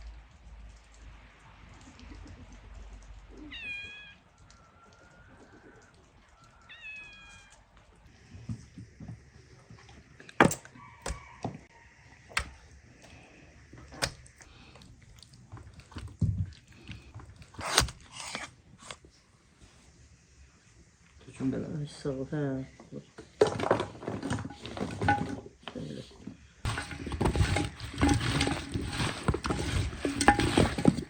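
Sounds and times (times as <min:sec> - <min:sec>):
cat meowing: 0:03.3 - 0:04.2, 0:06.7 - 0:07.6.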